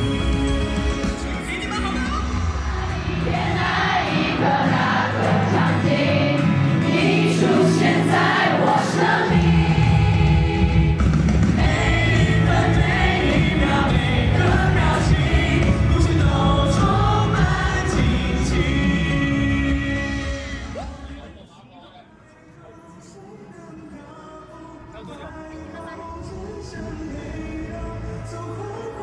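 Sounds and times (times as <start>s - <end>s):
crowd singing along: 0.0s - 1.5s, 2.1s - 21.4s
heavy bass: 0.0s - 6.9s, 9.3s - 21.1s
live concert music: 0.0s - 21.5s, 22.8s - 29.0s.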